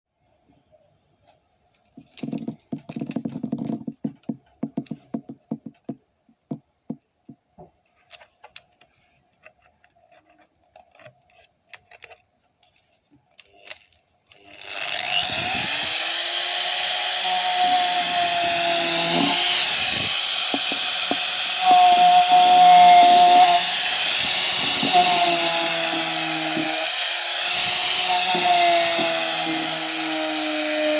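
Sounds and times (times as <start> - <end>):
angle grinder whining: 14.4 - 30.9.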